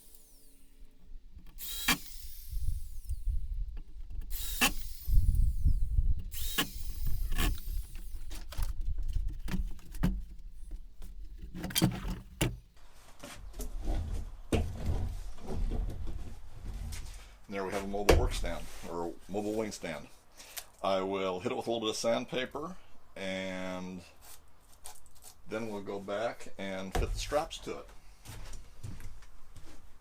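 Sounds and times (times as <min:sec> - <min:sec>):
sharp knocks and clicks: 0:06.2 - 0:12.7.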